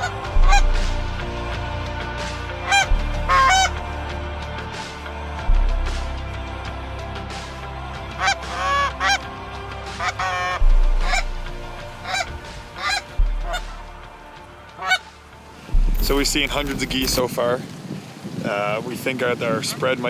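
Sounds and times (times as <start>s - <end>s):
geese honking: 0.0s - 1.0s, 2.4s - 4.1s, 8.0s - 15.3s.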